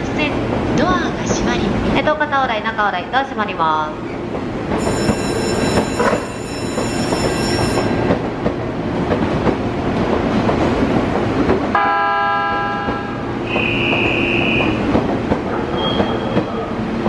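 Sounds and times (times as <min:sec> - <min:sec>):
train wheels rumbling on rail: 0:03.9 - 0:17.0.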